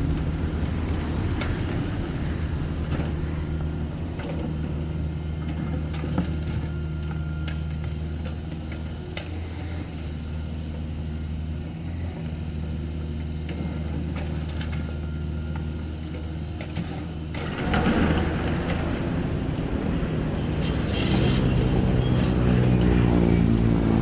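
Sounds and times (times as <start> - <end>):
rough rushing noise: 0.0 - 5.4, 17.4 - 24.0
diesel excavator engine running: 0.0 - 24.0.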